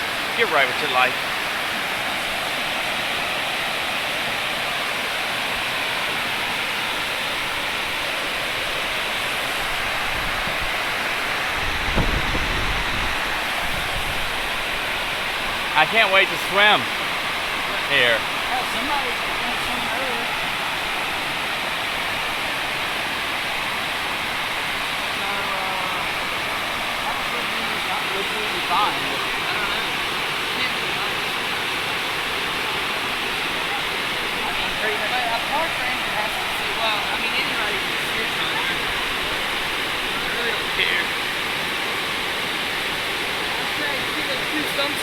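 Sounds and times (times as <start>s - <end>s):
waterfall roaring: 0.0s - 45.0s.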